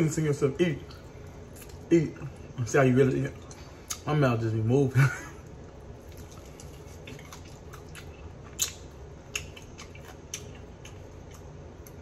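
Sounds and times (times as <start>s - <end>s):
wet mouth clicks and smacks: 6.1s - 12.0s.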